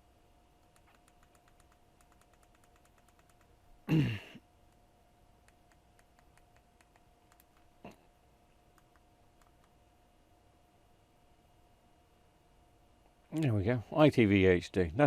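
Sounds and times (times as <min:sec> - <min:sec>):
faint electrical hum: 0:00.0 - 0:15.0
person sighing: 0:03.9 - 0:04.4.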